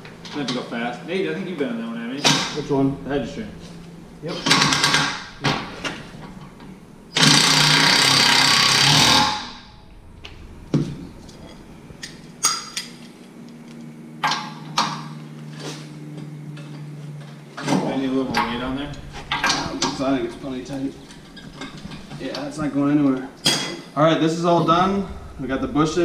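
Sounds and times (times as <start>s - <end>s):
power tool running: 2.3s - 12.6s.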